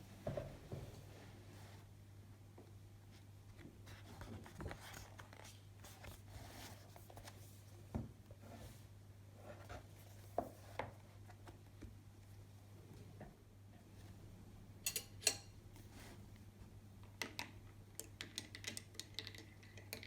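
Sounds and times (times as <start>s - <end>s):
rustling and scraping objects: 3.1s - 11.6s.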